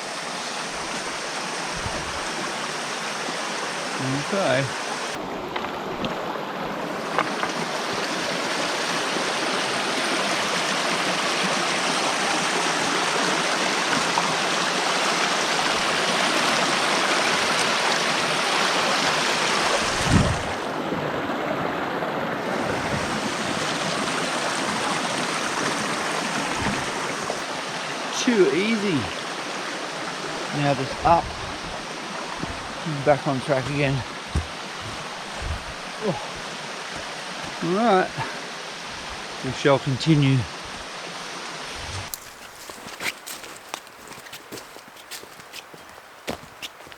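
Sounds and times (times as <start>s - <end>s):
creek rushing over rocks: 0.0s - 46.9s
dull thump: 34.3s - 35.8s.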